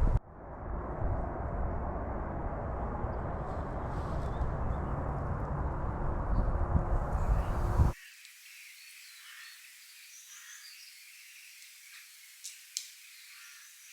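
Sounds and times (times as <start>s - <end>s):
loud low rumbling: 0.0s - 8.0s
small birds chirping: 7.1s - 13.9s.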